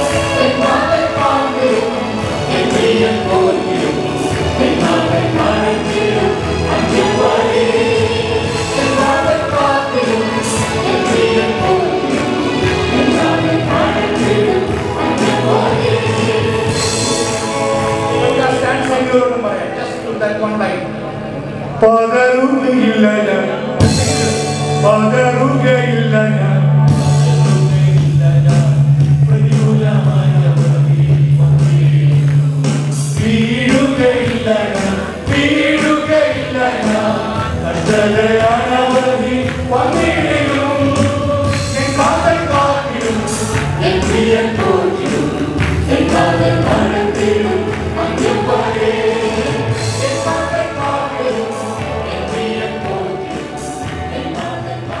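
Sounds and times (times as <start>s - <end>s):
singing over a band: 0.0s - 20.9s, 22.0s - 55.0s
low bass note held: 23.8s - 32.9s.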